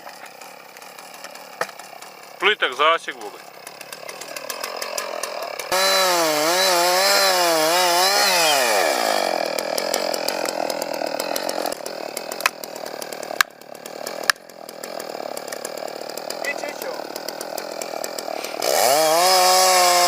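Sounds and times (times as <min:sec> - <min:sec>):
chainsaw revving: 0:00.0 - 0:20.0
sharp cracks: 0:03.3 - 0:18.8.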